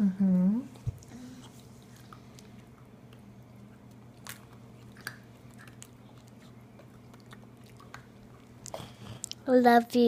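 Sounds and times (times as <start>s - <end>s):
steady low hum: 0.0s - 10.0s
crunching and chewing: 1.6s - 9.5s.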